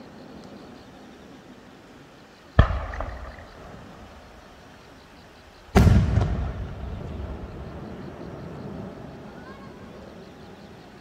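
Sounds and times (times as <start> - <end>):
firework booms: 2.6 - 4.5, 5.6 - 9.3
firework crack: 2.6 - 4.7, 5.6 - 9.9.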